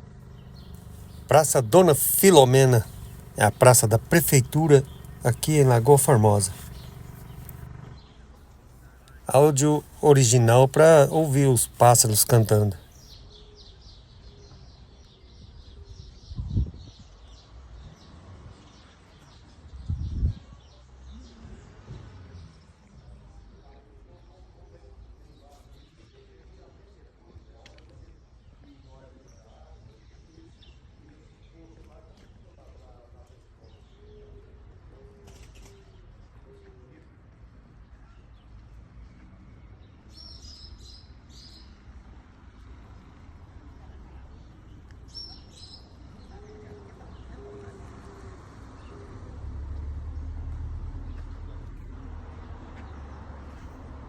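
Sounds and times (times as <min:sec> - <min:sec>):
birds chirping: 0:00.4 - 0:07.6, 0:09.1 - 0:12.8.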